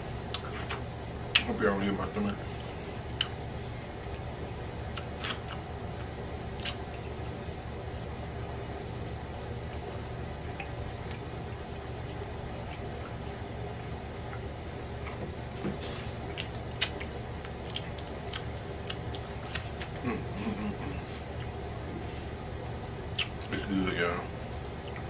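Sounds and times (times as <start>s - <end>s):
steady low hum: 0.0s - 25.0s
man chewing meat: 0.1s - 1.5s, 2.4s - 23.5s, 24.4s - 25.0s
mouth clicks and smacks: 0.3s - 1.5s, 3.0s - 3.4s, 4.1s - 7.2s, 16.2s - 21.6s, 23.1s - 23.5s.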